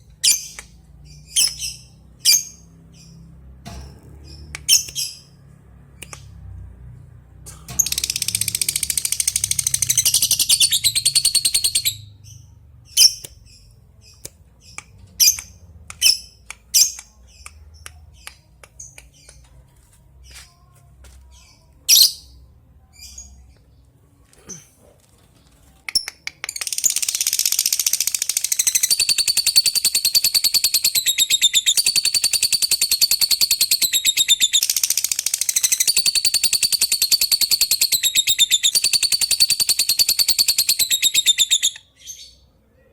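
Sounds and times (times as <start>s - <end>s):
lovebird sharp chirps: 7.7s - 17.5s, 26.0s - 42.3s
lovebird chattering trill: 26.6s - 41.8s.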